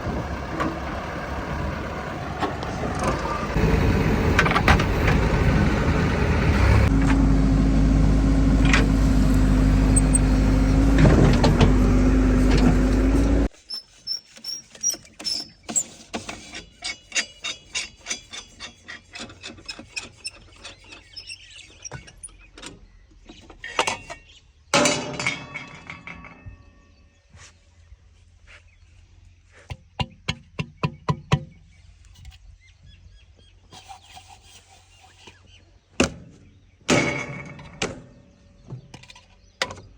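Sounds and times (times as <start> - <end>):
heavy machine engine running: 0.0 - 13.5.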